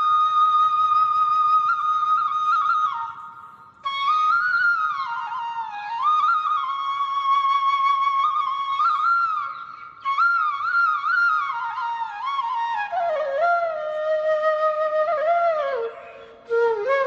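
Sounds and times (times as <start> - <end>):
solo flute melody: 0.0 - 17.0.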